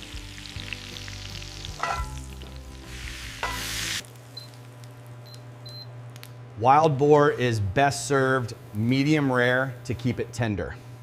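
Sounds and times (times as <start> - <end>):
steak sizzling in a frying pan: 0.0 - 4.8.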